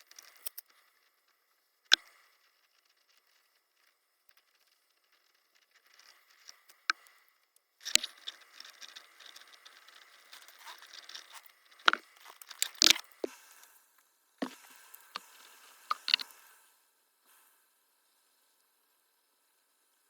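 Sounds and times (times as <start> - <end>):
sharp clicks and snaps: 6.5 - 13.3, 15.9 - 16.3
rustling and crinkling wrap: 9.2 - 13.3.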